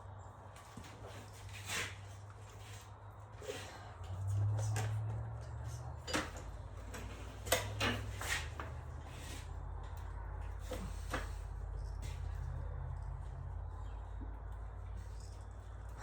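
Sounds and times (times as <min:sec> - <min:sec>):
low steady hum: 0:00.0 - 0:16.0
clicks and knocks of hands working: 0:04.0 - 0:08.8.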